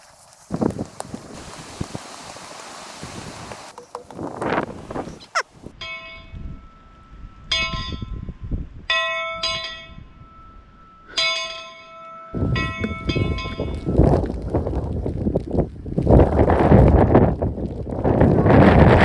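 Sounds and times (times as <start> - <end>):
wind on microphone: 0.5 - 6.6, 12.4 - 19.0
small metal bell ringing: 8.9 - 13.7.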